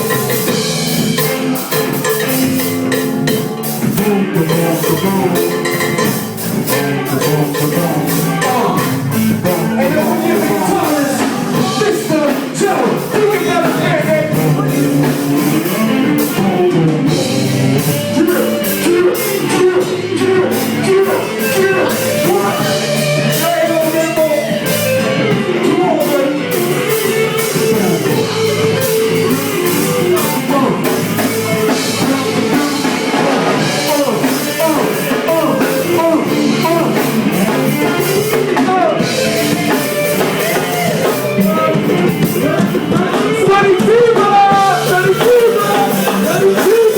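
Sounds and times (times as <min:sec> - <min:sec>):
bass guitar: 0:00.0 - 0:46.9
drum kit playing: 0:00.0 - 0:46.9
electric guitar: 0:00.0 - 0:46.9
wordless vocals: 0:00.0 - 0:46.9.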